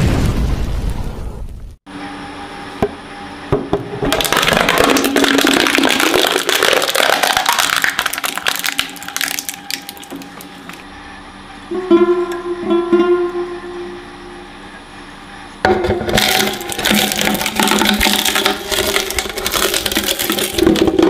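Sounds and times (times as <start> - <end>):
shredder motor hum: 1.9 - 21.0
skull cracking and crunching: 4.2 - 10.8, 16.2 - 21.0.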